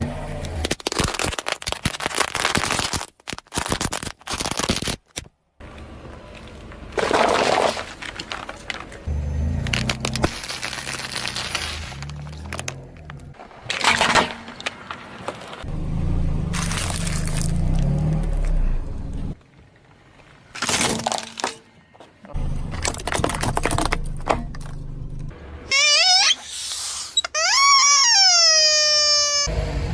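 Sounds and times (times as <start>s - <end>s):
car engine rumbling: 0.0s - 0.9s, 8.0s - 13.6s, 14.5s - 19.4s, 22.3s - 25.9s
objects crunching under tyres: 0.3s - 25.4s.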